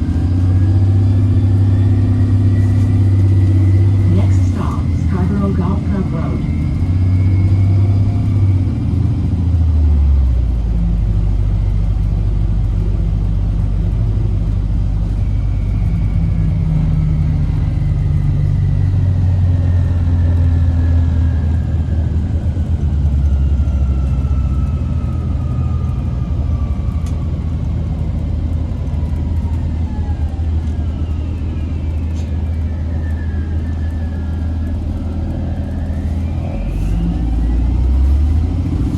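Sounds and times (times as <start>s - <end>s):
bus diesel engine rumble: 0.0s - 38.9s
road noise: 0.0s - 38.9s.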